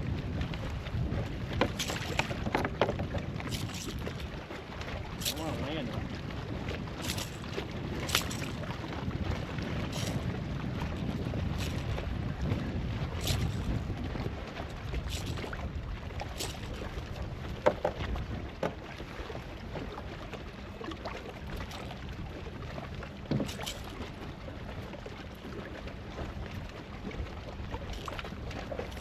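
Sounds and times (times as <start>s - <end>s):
water moving around a kayak: 0.0s - 29.0s
wind on microphone: 0.0s - 29.0s
knocks against kayak: 1.6s - 4.0s, 17.6s - 18.8s, 23.3s - 23.6s.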